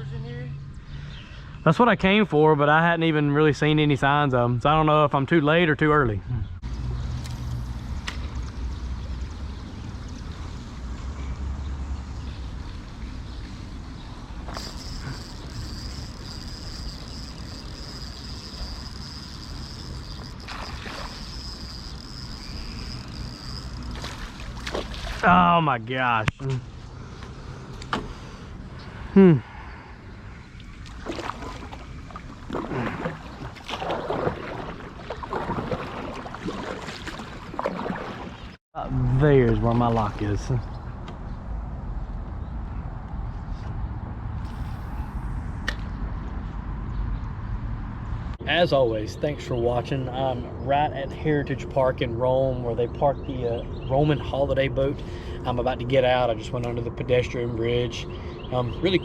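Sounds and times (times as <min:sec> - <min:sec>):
faint small ticks: 0:14.5 - 0:24.4
paddle splashing in water: 0:20.2 - 0:22.3, 0:23.8 - 0:25.3, 0:30.6 - 0:38.6.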